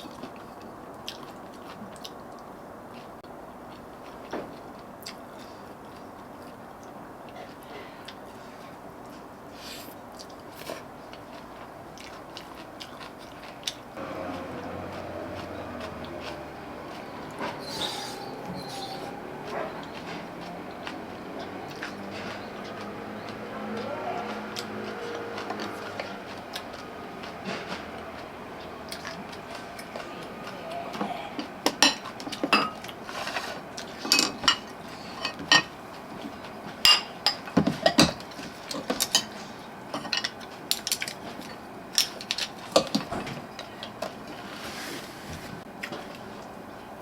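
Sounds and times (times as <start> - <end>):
dishes and cutlery clinking: 30.9 - 35.8, 36.8 - 43.4.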